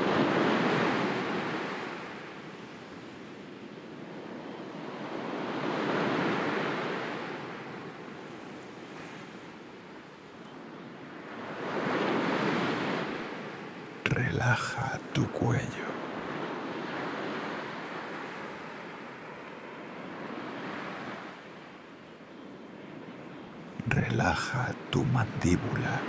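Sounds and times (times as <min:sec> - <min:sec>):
sea waves surging: 0:00.0 - 0:02.8, 0:11.0 - 0:26.0.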